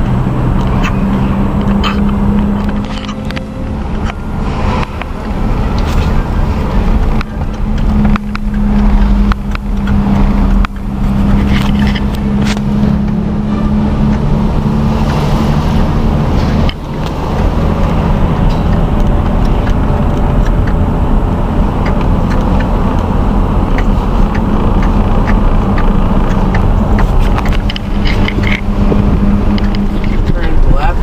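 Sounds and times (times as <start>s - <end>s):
car engine hum and road noise: 0.0s - 31.0s.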